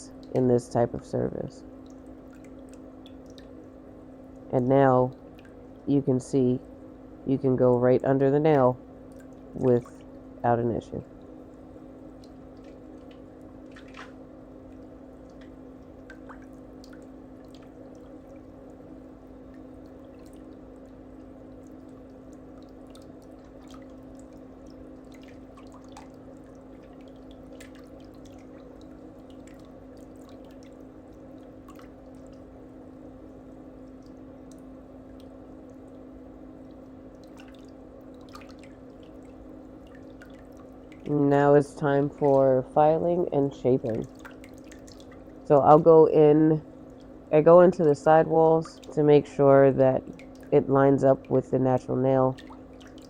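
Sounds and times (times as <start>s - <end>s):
low electrical hum: 0.0s - 53.0s
small clicks and ticks: 1.8s - 3.5s.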